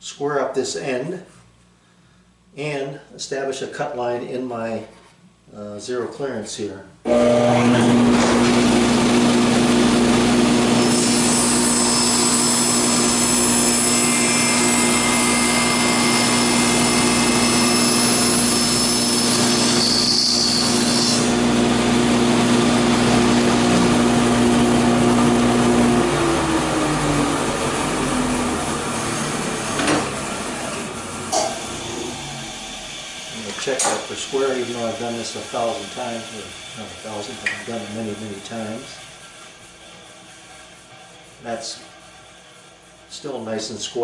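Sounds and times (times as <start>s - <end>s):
saw motor hum spinning down: 7.1s - 36.4s
table saw cutting wood: 7.1s - 41.8s.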